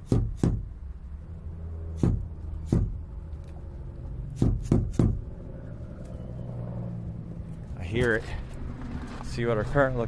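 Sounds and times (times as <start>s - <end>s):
hammer knocking on metal: 0.0s - 0.7s, 2.0s - 3.0s
low hum: 0.7s - 9.3s.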